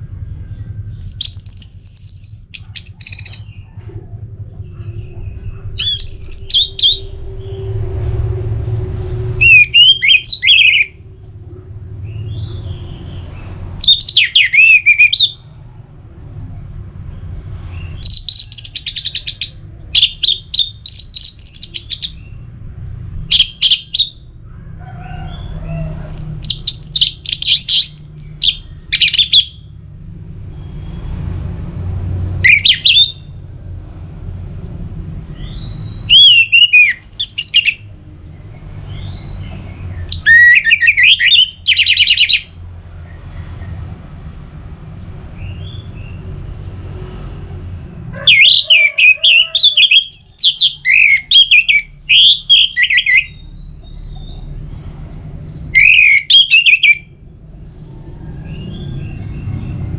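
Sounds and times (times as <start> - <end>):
faint low rumble: 0.0 - 14.3
thrush singing whistled phrases: 5.8 - 7.7, 9.4 - 11.0, 13.8 - 15.4, 23.3 - 24.3, 26.4 - 29.7, 32.4 - 33.3, 35.4 - 37.9, 40.1 - 42.5, 48.3 - 54.2, 55.7 - 57.1.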